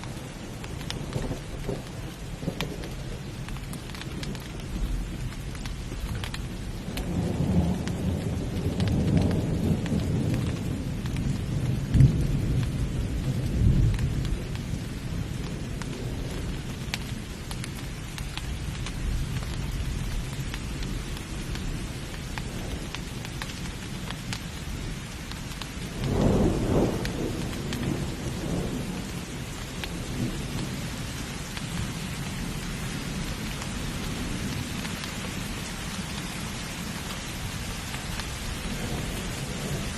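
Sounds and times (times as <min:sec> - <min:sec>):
heavy rain: 0:00.0 - 0:39.9
rolling thunder: 0:00.6 - 0:17.7, 0:25.8 - 0:36.0, 0:36.6 - 0:39.9.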